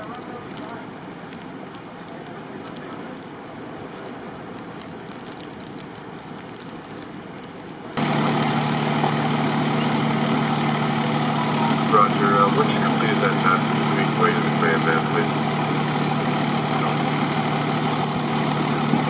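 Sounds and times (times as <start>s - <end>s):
faint crackles: 0.0s - 19.0s
street ambience: 0.0s - 19.0s
vehicle engine idling: 8.0s - 19.0s.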